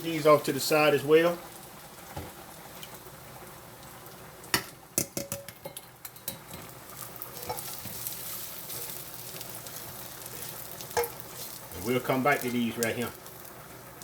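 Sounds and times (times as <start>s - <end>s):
onions sizzling in oil: 0.0s - 14.0s
utensil scraping a pot: 7.3s - 11.8s.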